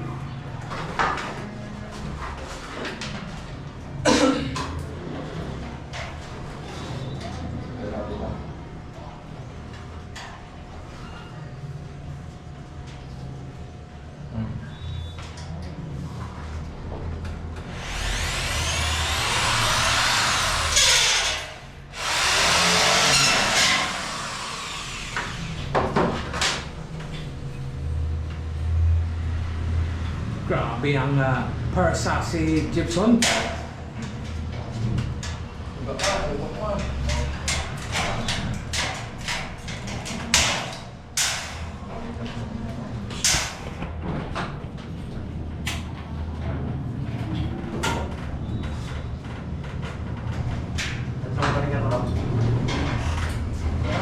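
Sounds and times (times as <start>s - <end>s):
power tool running loud: 17.6s - 25.8s.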